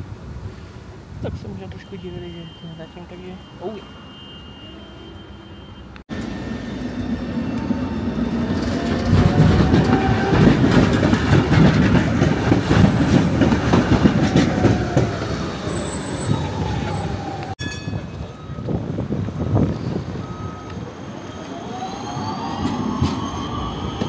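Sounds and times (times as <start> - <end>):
wheels clattering over rails: 7.9 - 18.3
high wheel squeal: 14.3 - 18.8, 19.4 - 24.0.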